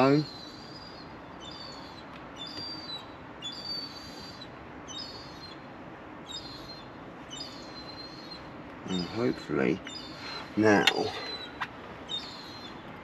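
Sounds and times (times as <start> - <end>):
songbird chirping and whistling: 0.0 - 12.8
faint steady hiss: 0.0 - 13.0.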